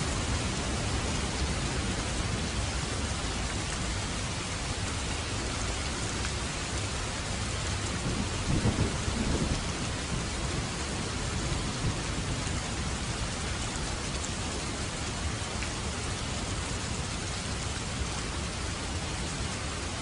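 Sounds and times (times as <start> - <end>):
steady rain: 0.0 - 20.0
low thunder rumble: 7.4 - 13.6.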